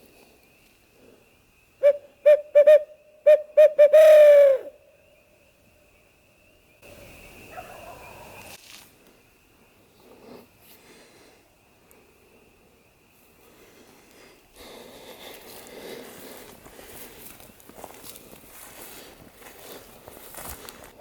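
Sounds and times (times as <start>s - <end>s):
owl hooter call: 1.8s - 5.0s.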